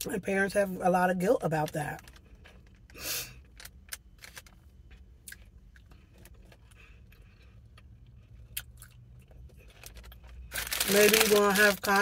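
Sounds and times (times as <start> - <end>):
low steady hum: 0.0 - 12.0
soft chewing of bagel: 2.0 - 10.8.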